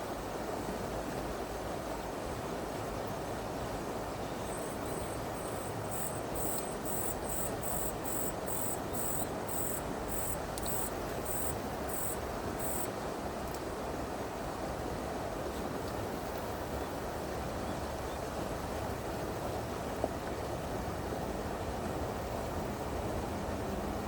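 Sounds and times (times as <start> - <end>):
stream rushing: 0.0 - 17.6
insect high-pitched pulsing call: 4.4 - 12.9.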